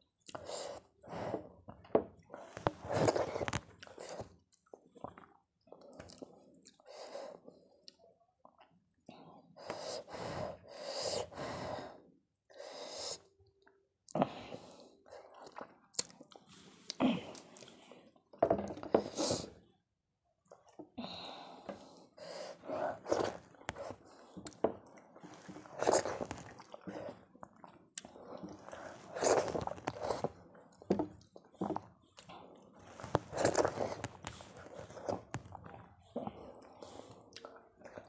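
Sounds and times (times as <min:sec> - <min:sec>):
wet chewing and mouth clicks: 0:01.7 - 0:06.9, 0:15.2 - 0:17.8, 0:22.9 - 0:38.0.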